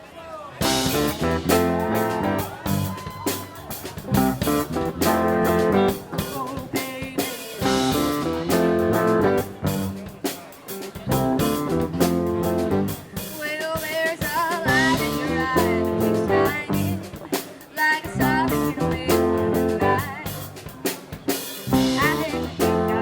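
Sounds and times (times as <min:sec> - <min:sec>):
electric guitar chords: 0:00.6 - 0:03.4, 0:04.0 - 0:06.6, 0:07.6 - 0:10.0, 0:11.1 - 0:13.3, 0:14.7 - 0:17.1, 0:18.2 - 0:20.3, 0:21.7 - 0:23.0
drum kit beat: 0:00.6 - 0:23.0.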